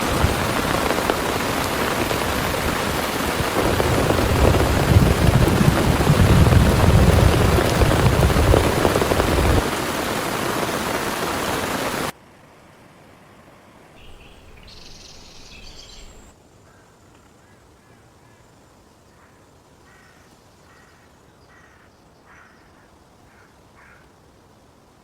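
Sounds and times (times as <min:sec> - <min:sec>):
heavy rain pouring: 0:00.0 - 0:12.2.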